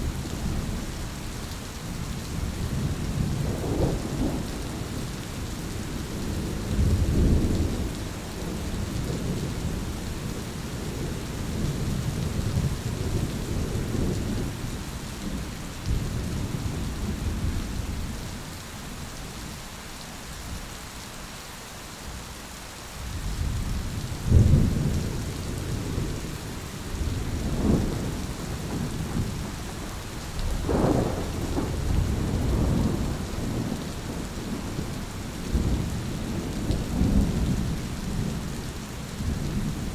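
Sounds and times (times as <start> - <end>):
steady rain: 0.0 - 39.9
rolling thunder: 23.2 - 38.5
sharp loud thunderclap: 27.0 - 29.8, 30.5 - 34.5.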